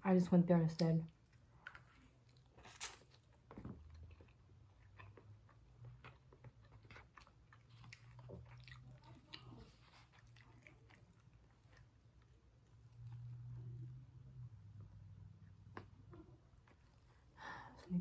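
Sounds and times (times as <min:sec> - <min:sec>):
low steady hum: 0:00.0 - 0:18.0
person chewing food: 0:01.1 - 0:13.6.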